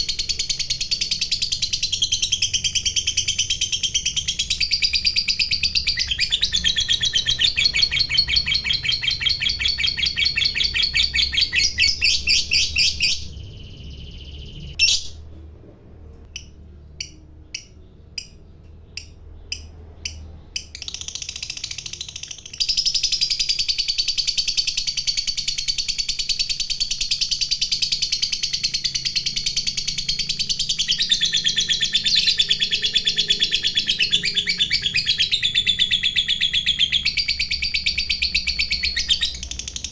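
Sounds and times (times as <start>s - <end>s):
lovebird chattering trill: 0.0s - 15.2s.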